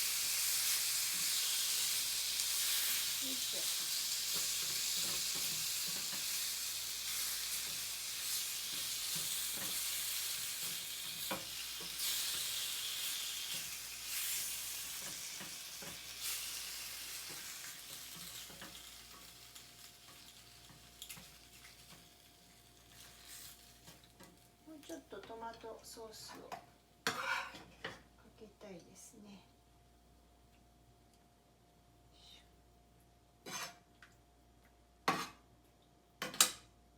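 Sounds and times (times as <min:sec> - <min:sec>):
food sizzling in a frying pan: 0:00.0 - 0:25.2.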